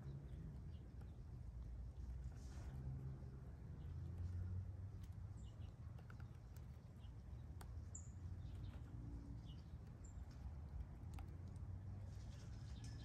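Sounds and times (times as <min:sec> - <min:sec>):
small birds chirping: 0:03.4 - 0:13.0.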